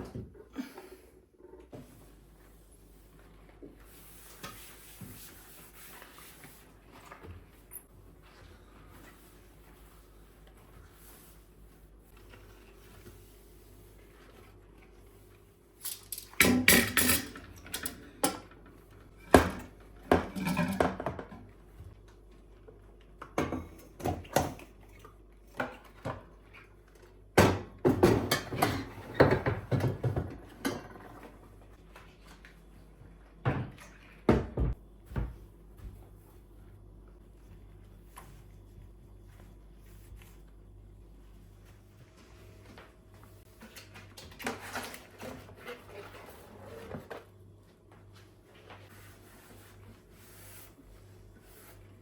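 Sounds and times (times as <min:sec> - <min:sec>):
objects knocking and clattering: 0:15.9 - 0:21.6, 0:27.4 - 0:31.4.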